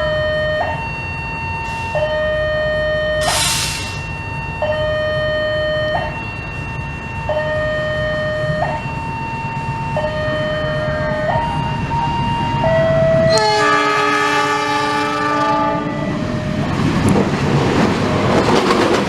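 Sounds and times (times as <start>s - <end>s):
two-tone electronic alarm: 0.0s - 16.9s
short hiss: 3.2s - 4.1s.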